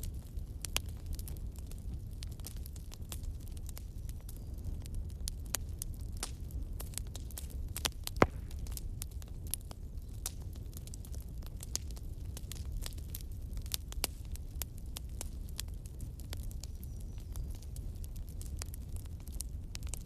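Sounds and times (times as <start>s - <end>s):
fireplace fire crackling: 0.0s - 20.0s
sharp pops: 8.1s - 8.8s.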